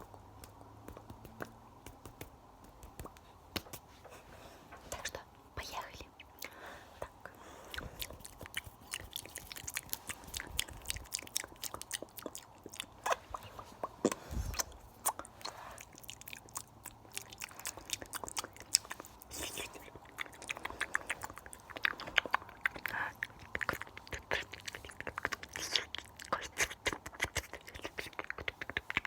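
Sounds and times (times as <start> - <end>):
wet mouth clicks and smacks: 7.7 - 29.0.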